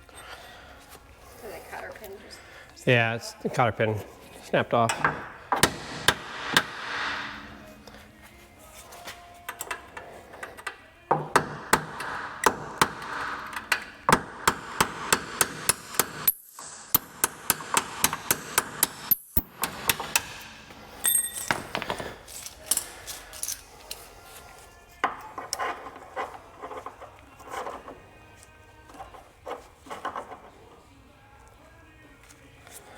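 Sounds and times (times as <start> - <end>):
hammer striking metal: 4.8 - 7.9, 11.1 - 22.9.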